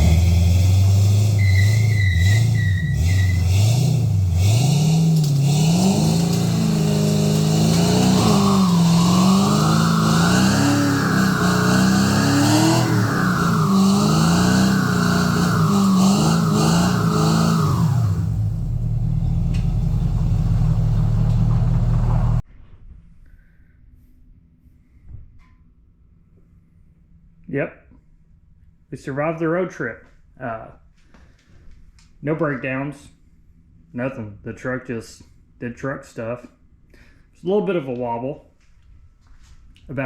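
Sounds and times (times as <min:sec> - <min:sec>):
vee eight engine revving: 0:00.0 - 0:22.4.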